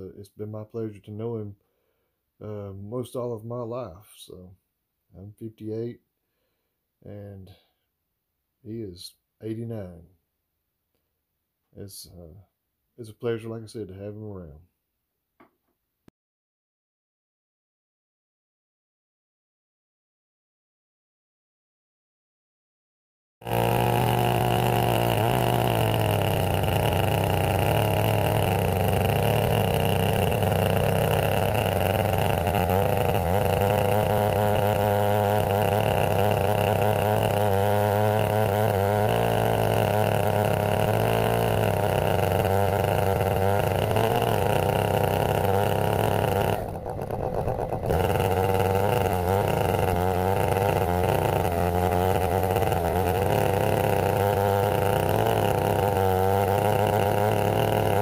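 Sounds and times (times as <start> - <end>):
chainsaw cutting a log: 23.4 - 58.0.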